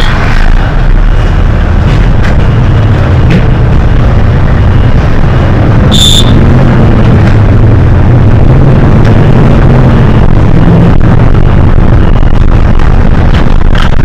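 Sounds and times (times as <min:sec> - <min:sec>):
bus engine droning: 0:00.0 - 0:14.0
road rumble: 0:00.0 - 0:14.0
short high electronic beep: 0:05.9 - 0:06.4.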